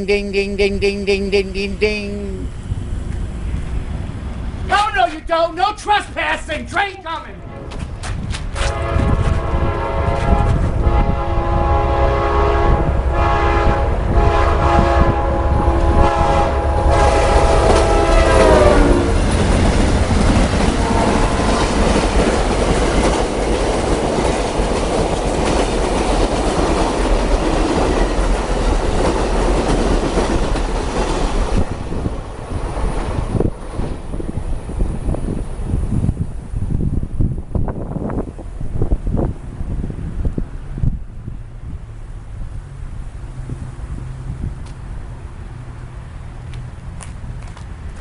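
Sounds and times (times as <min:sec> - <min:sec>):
locomotive air horn blasts: 0:08.6 - 0:19.1, 0:20.8 - 0:21.6
train wheels on rails: 0:16.9 - 0:36.1.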